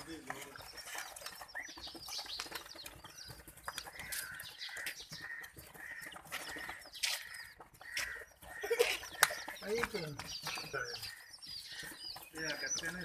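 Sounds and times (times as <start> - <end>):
chicks and ducklings peeping: 0.0 - 13.0.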